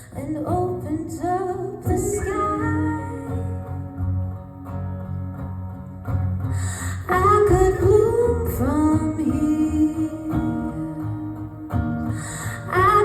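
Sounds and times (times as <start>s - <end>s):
electric guitar chords: 0.0s - 13.0s
electric bass: 1.8s - 13.0s.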